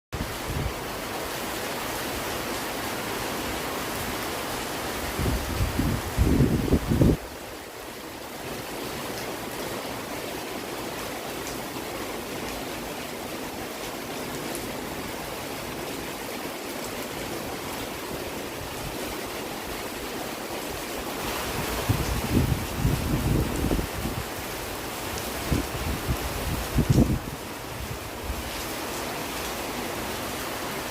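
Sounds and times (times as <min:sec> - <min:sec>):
steady rain falling: 0:00.2 - 0:30.9
wind gusts buffeting microphone: 0:05.0 - 0:07.3, 0:21.2 - 0:24.5, 0:25.2 - 0:28.5.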